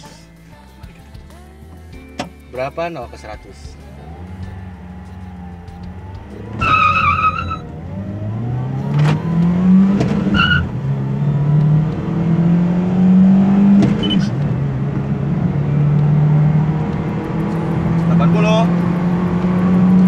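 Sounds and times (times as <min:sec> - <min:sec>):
car engine revving at full throttle: 0:03.8 - 0:20.0
tyres squealing: 0:03.9 - 0:11.8.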